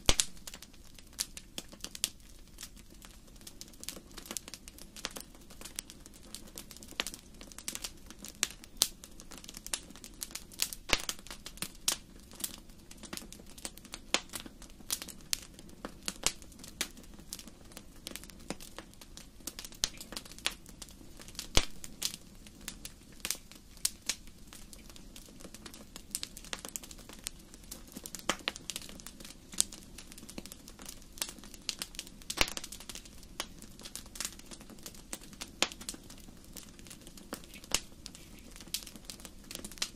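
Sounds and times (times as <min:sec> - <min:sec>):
low rush of flames: 0:00.0 - 0:39.9
wood fire crackling and popping: 0:00.0 - 0:39.9.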